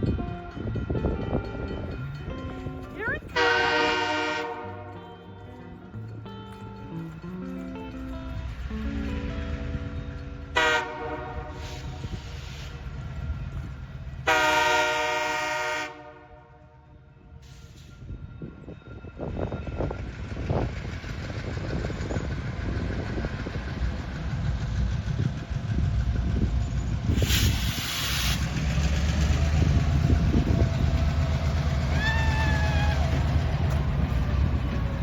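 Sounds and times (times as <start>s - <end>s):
wheels clacking over rails: 0.0s - 14.3s, 19.7s - 35.0s
freight train rumbling past: 0.0s - 35.0s
train horn tone: 3.0s - 5.7s, 10.4s - 12.6s, 14.2s - 17.1s
brief hiss: 27.1s - 28.5s.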